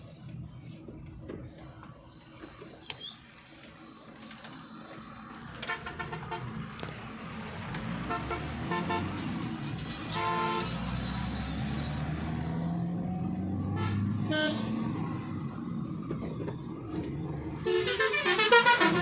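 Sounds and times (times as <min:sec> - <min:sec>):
road traffic rumble: 0:00.0 - 0:19.0
vehicle horns honking: 0:08.1 - 0:09.2, 0:10.1 - 0:10.8, 0:13.7 - 0:14.8, 0:17.6 - 0:19.0.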